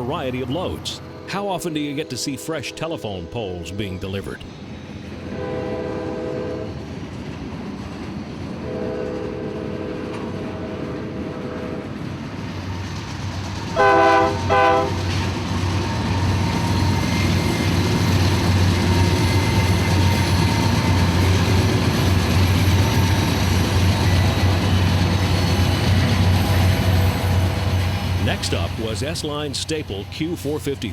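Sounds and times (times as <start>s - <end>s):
locomotive engine drone: 0.0s - 30.9s
rolling rail noise: 0.0s - 30.9s
train horn blasts: 5.2s - 6.8s, 8.6s - 11.9s, 13.8s - 15.1s.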